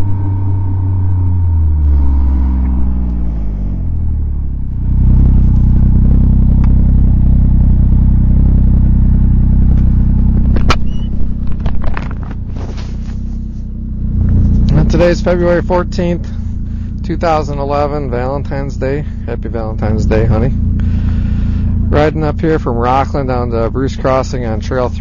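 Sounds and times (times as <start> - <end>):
snowmobile engine running: 0.0 - 25.0
sharp knocks and clatter: 9.7 - 12.6.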